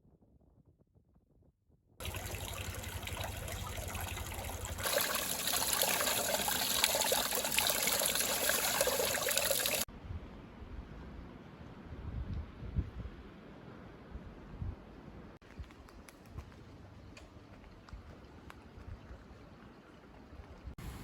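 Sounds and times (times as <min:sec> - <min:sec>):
water trickling: 0:02.0 - 0:09.9
faint outdoor air: 0:02.0 - 0:21.0.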